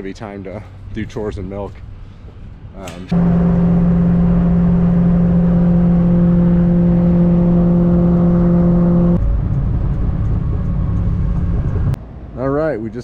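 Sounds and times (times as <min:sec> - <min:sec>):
vehicle driving drone: 0:03.1 - 0:12.3.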